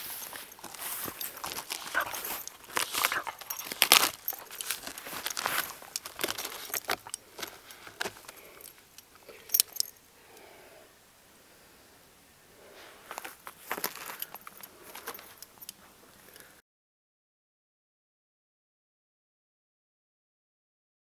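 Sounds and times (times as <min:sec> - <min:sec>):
dog cracking sticks: 0:00.6 - 0:08.5.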